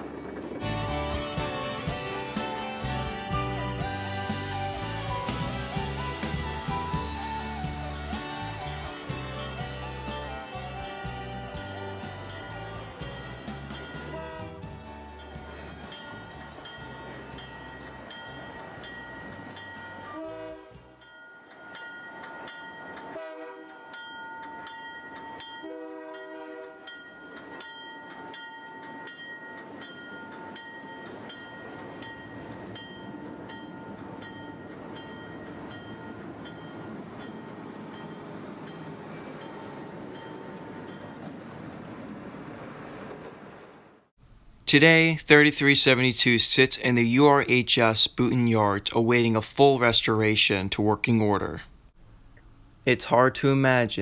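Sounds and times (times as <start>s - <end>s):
locomotive bell ringing: 7.6s - 20.4s, 21.0s - 23.2s, 23.8s - 41.5s
train horn blasts: 13.9s - 14.8s, 20.1s - 21.0s, 23.1s - 24.0s, 25.6s - 27.0s.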